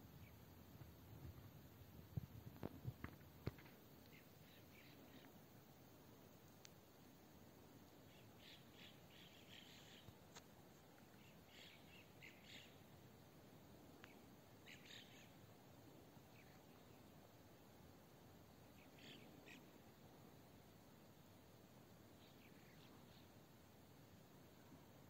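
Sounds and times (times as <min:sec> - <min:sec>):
low steady hiss: 0:00.0 - 0:25.0
faint ticks: 0:00.7 - 0:05.4, 0:06.4 - 0:06.9, 0:13.9 - 0:15.4
faint bird chirps: 0:03.5 - 0:05.6, 0:07.6 - 0:21.2, 0:22.0 - 0:23.6.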